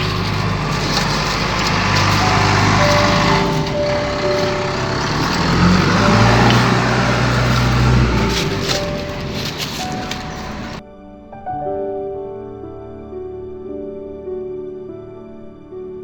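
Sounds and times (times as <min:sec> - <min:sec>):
engine running: 0:00.0 - 0:10.8.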